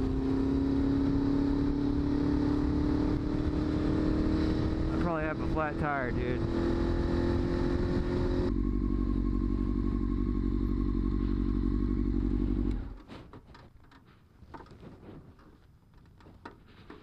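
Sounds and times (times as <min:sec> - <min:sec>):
motorcycle engine idling: 0:08.4 - 0:13.0
light clicks and knocks: 0:13.3 - 0:17.0.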